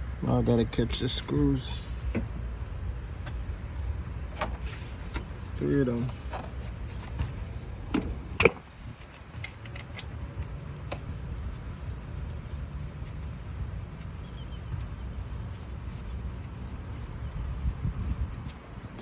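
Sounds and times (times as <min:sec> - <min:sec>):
metallic clicks of screws and tools: 0:08.4 - 0:12.6.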